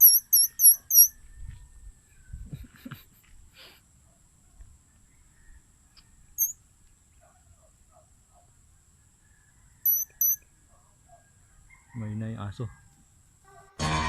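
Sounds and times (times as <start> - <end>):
insects droning: 0.0 - 1.2, 7.7 - 10.4
loud high chirp: 0.0 - 1.2, 9.8 - 10.4
distant dogs barking: 7.1 - 8.8, 10.6 - 12.0, 12.7 - 13.8.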